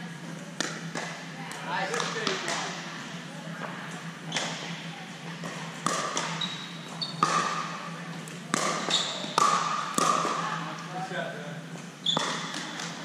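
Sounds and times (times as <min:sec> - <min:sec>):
paddles hitting plastic ball: 0:00.6 - 0:02.8, 0:05.4 - 0:06.4, 0:07.2 - 0:10.5, 0:12.1 - 0:13.0.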